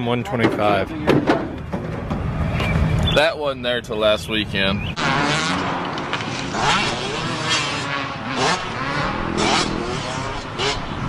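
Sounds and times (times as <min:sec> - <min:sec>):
dirt bike engine revving: 0:04.9 - 0:11.0.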